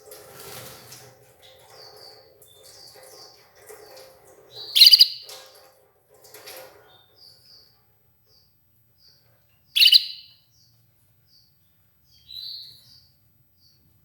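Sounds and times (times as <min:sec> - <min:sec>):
canary chirping: 0:04.5 - 0:05.3, 0:06.9 - 0:13.8.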